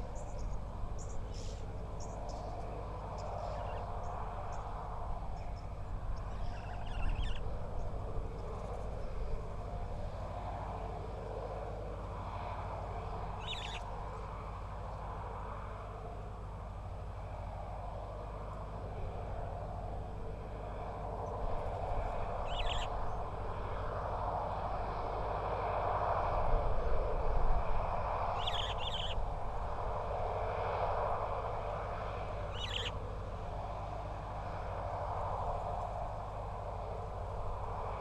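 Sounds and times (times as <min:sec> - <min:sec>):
steady low hum: 0:00.0 - 0:38.0
bird calls: 0:00.2 - 0:02.5, 0:03.2 - 0:04.6, 0:05.4 - 0:07.5, 0:13.4 - 0:13.9, 0:22.4 - 0:23.2, 0:28.4 - 0:29.2, 0:32.5 - 0:33.0.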